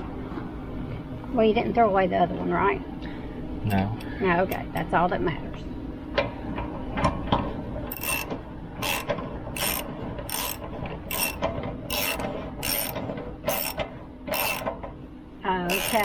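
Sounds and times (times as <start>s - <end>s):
ratchet wrench clicking: 7.9s - 14.7s, 15.7s - 16.0s.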